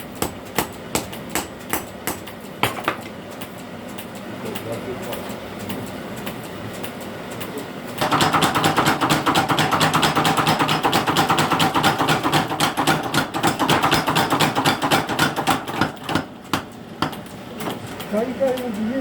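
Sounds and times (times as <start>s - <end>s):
power hammer striking steel: 0.0s - 3.1s, 8.0s - 17.8s.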